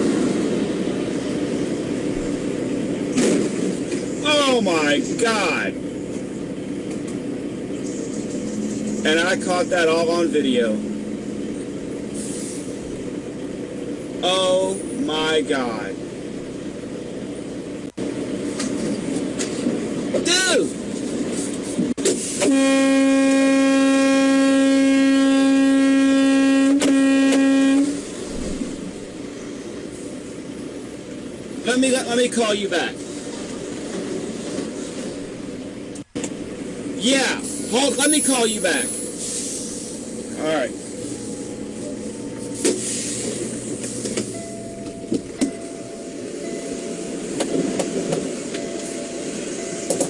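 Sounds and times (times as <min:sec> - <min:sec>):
diesel truck engine running: 0:00.0 - 0:50.0
truck horn blast: 0:22.2 - 0:28.6
faint steady tone: 0:39.9 - 0:50.0.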